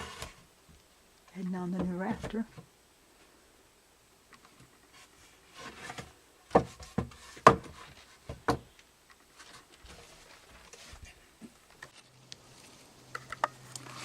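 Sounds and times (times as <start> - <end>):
sharp knocks on wood: 6.5 - 8.7.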